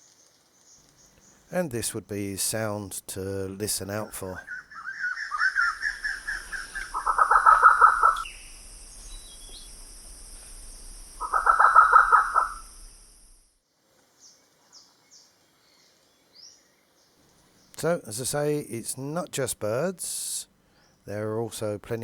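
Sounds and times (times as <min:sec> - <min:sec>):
bird harsh rattling call: 0:04.5 - 0:08.6, 0:11.2 - 0:12.8
high-pitched hiss: 0:06.2 - 0:13.5.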